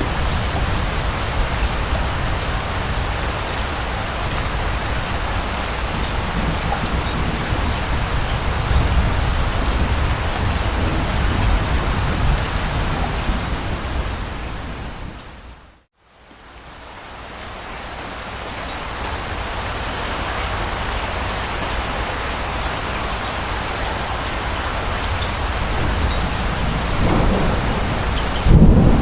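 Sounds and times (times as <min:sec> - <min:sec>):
distant thunder rumble: 0:00.0 - 0:15.5, 0:24.8 - 0:29.0
steady rain: 0:00.0 - 0:29.0.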